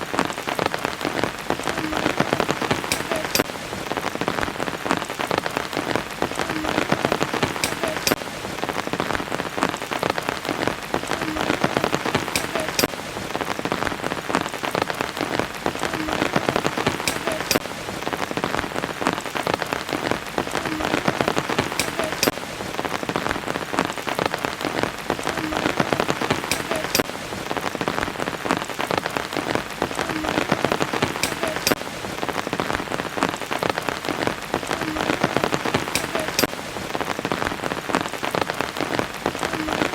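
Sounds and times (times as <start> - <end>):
rain patter: 0.0 - 39.9.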